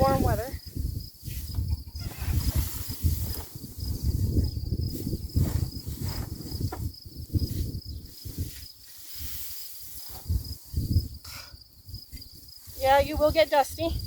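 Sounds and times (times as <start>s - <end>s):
low rumbling and rustling: 0.0s - 11.2s
insects chirring: 0.0s - 14.0s.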